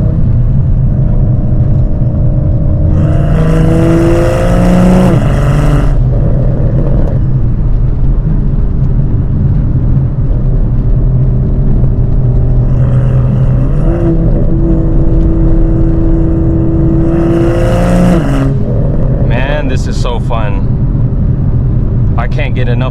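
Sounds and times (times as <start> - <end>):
exhaust droning: 0.0 - 22.9
car engine high-rev pull: 2.2 - 7.4, 12.5 - 20.1.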